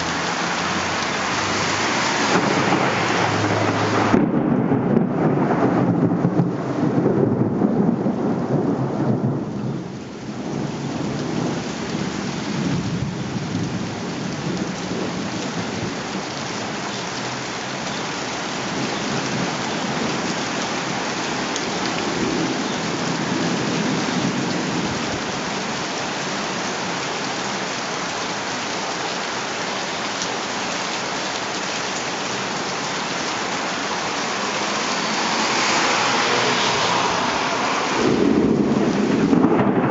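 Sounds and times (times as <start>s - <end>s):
rain falling on surfaces: 0.0s - 39.9s
thunder rumbling: 0.1s - 16.0s, 34.5s - 39.9s.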